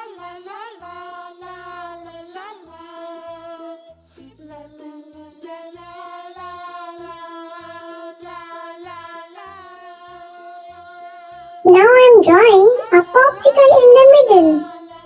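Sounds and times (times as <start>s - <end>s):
childlike voice singing: 11.7s - 14.8s.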